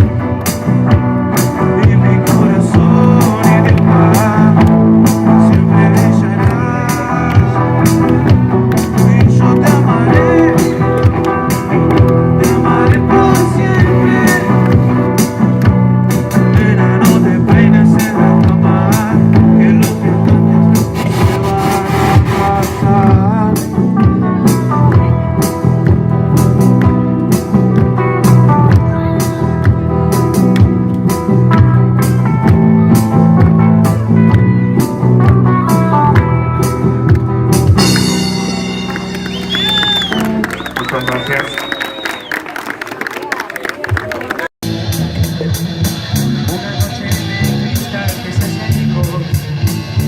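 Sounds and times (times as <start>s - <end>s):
electric guitar chords: 0.0s - 41.0s, 44.6s - 50.0s
live rock band playing: 0.0s - 41.4s, 44.6s - 50.0s
drum kit with cymbals: 20.6s - 24.7s, 37.6s - 39.6s
wavering lead guitar line: 26.9s - 41.8s.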